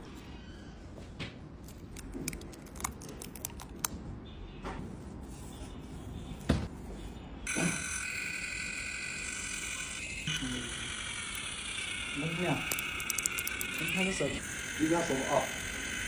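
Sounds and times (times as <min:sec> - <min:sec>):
small tools tapping phone parts: 0:01.7 - 0:04.0, 0:09.5 - 0:14.4
small electric motor whirring: 0:06.9 - 0:16.0.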